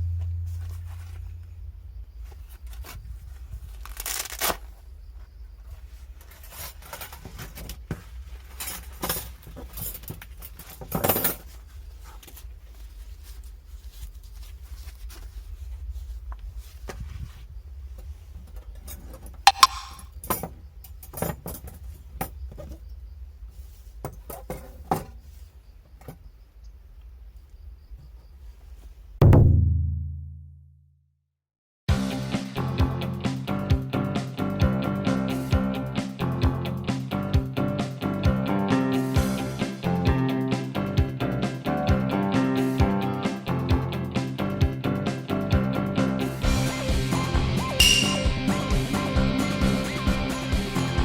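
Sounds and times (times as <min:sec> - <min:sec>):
steady low hum: 0:00.0 - 0:03.6.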